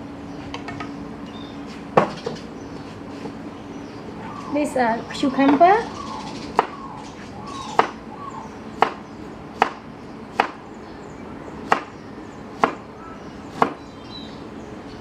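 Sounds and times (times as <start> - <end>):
knife chopping on cutting board: 12.6 - 12.8.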